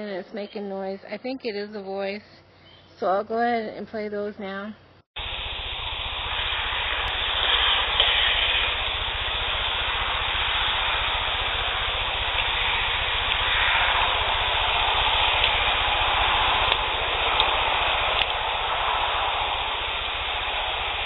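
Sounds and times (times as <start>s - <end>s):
low hum: 5.2s - 21.0s
rushing hiss: 5.2s - 21.0s.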